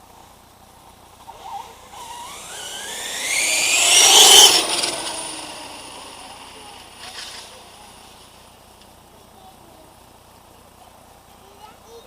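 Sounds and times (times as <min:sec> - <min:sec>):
electric motor whining: 0:01.2 - 0:08.4.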